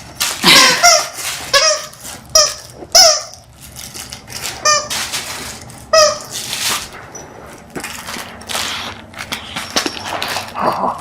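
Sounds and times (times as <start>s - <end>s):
rustling: 0.0s - 2.7s, 3.5s - 10.6s
squeaky toy squeaking: 0.5s - 3.4s, 4.6s - 5.0s, 5.9s - 6.4s.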